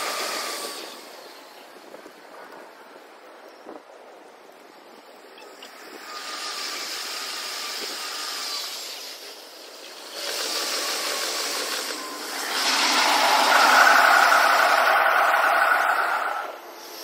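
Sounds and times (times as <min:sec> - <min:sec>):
faint steady whine: 0:00.0 - 0:17.0
trains rushing past: 0:10.2 - 0:17.0.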